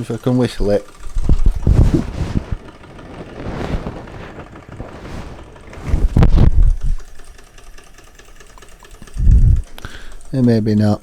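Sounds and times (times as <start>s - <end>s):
loud low rumble: 1.0s - 7.1s, 9.1s - 9.7s.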